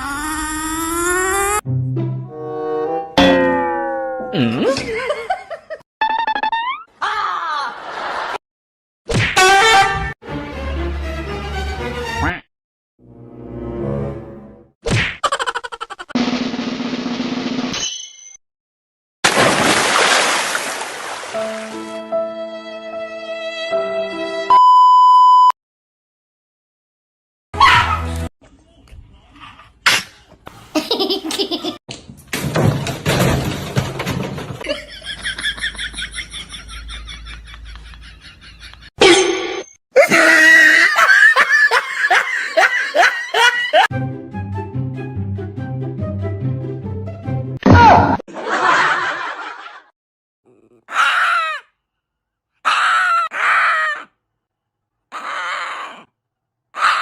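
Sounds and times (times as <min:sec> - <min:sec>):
people laughing hard: 0:07.6 - 0:08.4, 0:34.6 - 0:38.9, 0:40.0 - 0:43.9, 0:48.3 - 0:49.9
high-pitched pulsing laugh: 0:15.2 - 0:16.2.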